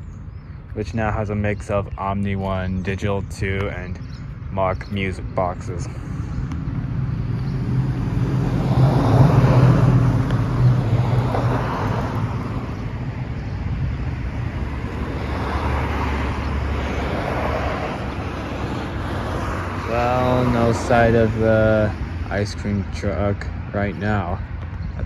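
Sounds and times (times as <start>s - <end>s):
cars passing by: 0.0s - 25.0s.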